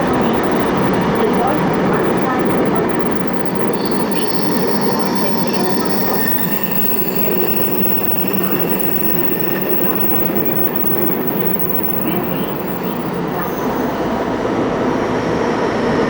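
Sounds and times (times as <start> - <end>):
train wheels and motors rumbling: 0.0 - 14.8
high wheel squeal: 3.0 - 14.6.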